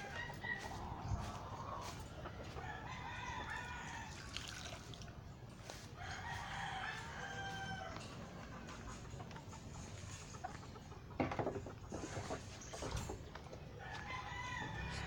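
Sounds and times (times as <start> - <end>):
roosters crowing: 0.0 - 4.9, 5.6 - 8.9, 13.6 - 15.0.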